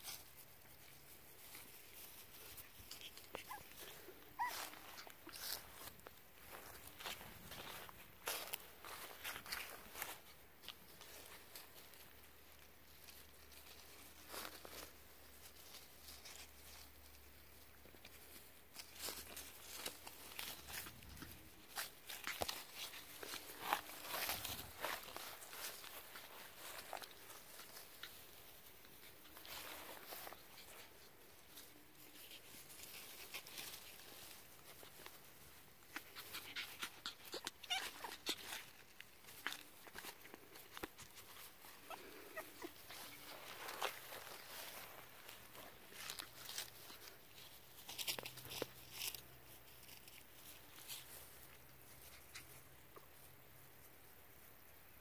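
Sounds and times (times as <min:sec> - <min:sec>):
puppy paws pattering on floor: 0:00.0 - 0:53.4
small clicks and scuffs: 0:00.0 - 0:54.5
puppy whimpering softly: 0:03.0 - 0:05.5, 0:36.2 - 0:38.8, 0:41.7 - 0:43.3.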